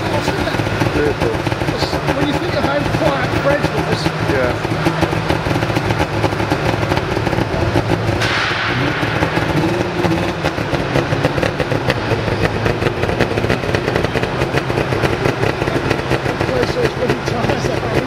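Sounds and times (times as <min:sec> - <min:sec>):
two-stroke rally car engine running: 0:00.0 - 0:18.0.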